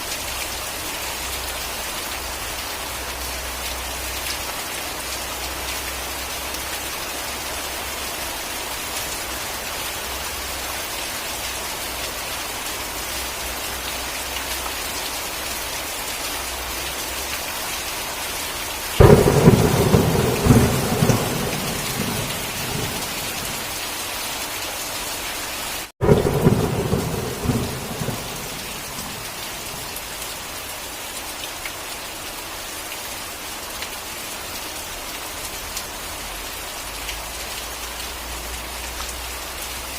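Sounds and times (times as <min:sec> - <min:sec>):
heavy rain: 0:00.0 - 0:39.9
thunderclaps: 0:19.0 - 0:23.7, 0:26.0 - 0:29.9.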